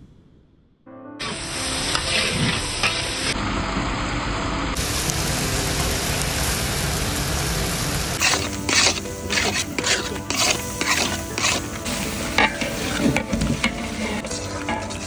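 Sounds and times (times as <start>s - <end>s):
onions sizzling in hot oil: 1.2s - 3.4s, 4.8s - 15.0s
metal spatula stirring in wok: 8.2s - 15.0s.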